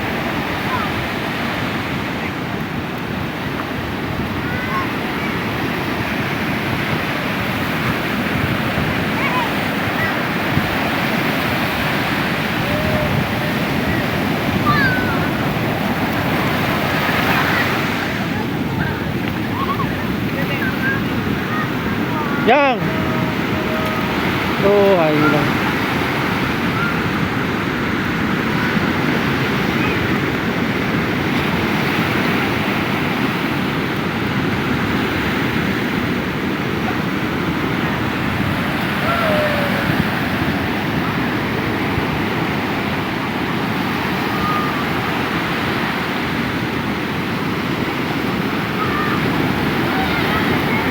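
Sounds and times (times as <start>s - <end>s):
ocean surf breaking: 0.0s - 50.9s
wind buffeting microphone: 0.0s - 50.9s
children shouting faintly: 12.4s - 16.1s, 17.1s - 27.2s, 37.8s - 40.3s.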